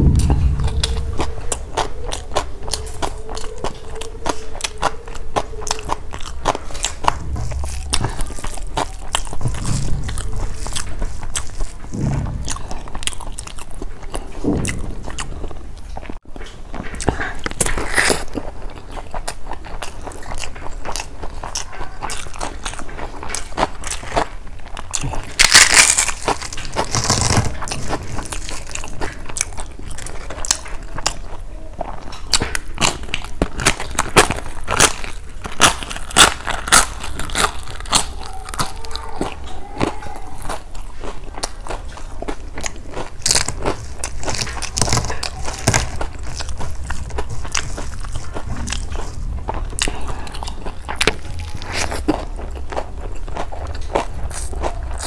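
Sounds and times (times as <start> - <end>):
wet chewing and lip smacking: 0.8 - 11.9, 12.9 - 55.0
crunching bites of crisp food: 17.1 - 55.0.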